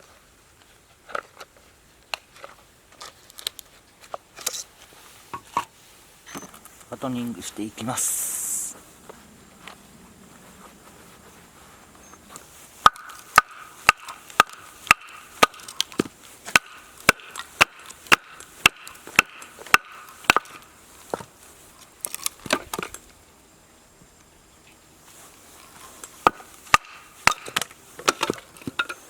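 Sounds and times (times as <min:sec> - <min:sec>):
baton striking blade in log: 0:12.8 - 0:20.7, 0:26.2 - 0:28.9.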